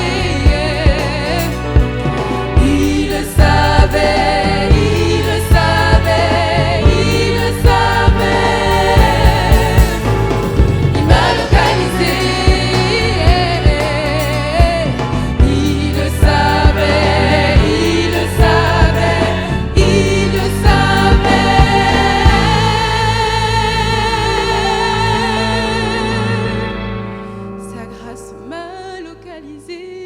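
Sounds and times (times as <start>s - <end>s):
bass and steady beat: 0.0s - 23.8s
voices singing gospel music: 0.0s - 27.2s.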